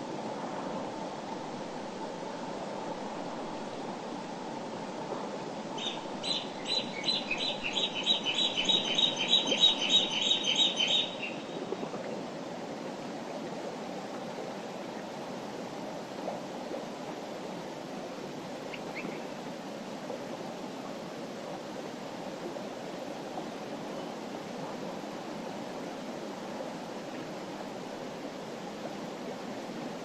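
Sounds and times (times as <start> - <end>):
songbird singing high notes: 5.8 - 11.4.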